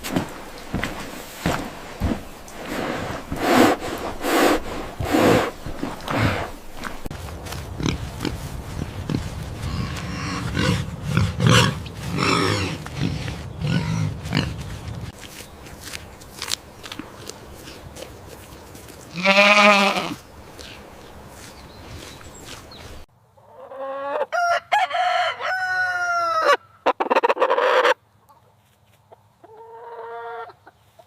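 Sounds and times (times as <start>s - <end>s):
pigs grunting: 7.6s - 15.1s.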